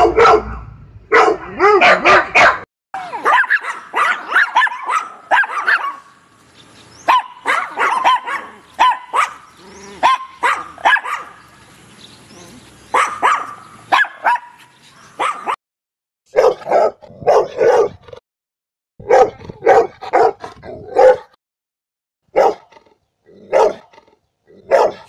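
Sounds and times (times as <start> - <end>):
large dog barking: 0.0 - 6.1, 7.0 - 11.4, 12.9 - 14.6, 15.2 - 15.6, 16.3 - 18.0, 19.0 - 21.4, 22.3 - 22.8, 23.4 - 25.0.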